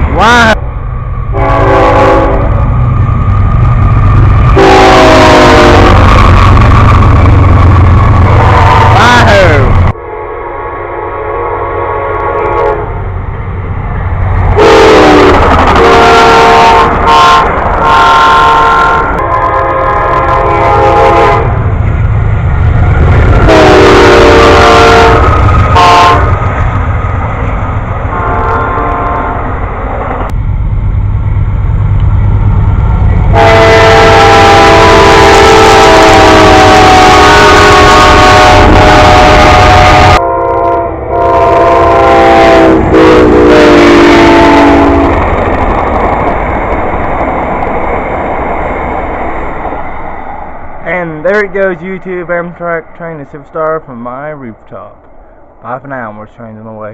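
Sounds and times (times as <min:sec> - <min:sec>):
train rumbling: 0:00.0 - 0:56.9
train horn blasts: 0:01.3 - 0:02.6, 0:04.6 - 0:06.1, 0:08.4 - 0:09.3, 0:10.0 - 0:13.0, 0:14.5 - 0:21.6, 0:23.4 - 0:26.4, 0:28.1 - 0:29.5, 0:33.3 - 0:45.2.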